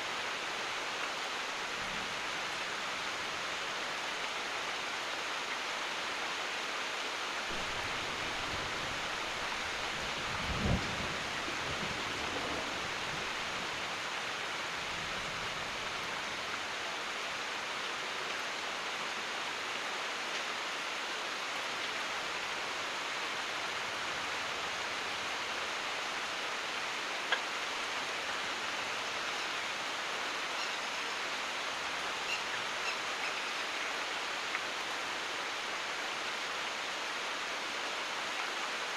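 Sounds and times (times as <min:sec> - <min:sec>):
heavy rain: 0:00.0 - 0:38.9
thunder rolling: 0:07.5 - 0:13.5.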